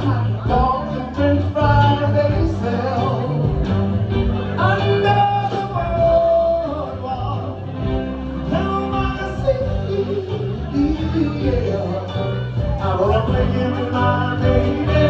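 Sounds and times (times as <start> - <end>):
bass line: 0.0 - 15.0
guitar: 0.0 - 15.0
person singing: 0.0 - 15.0.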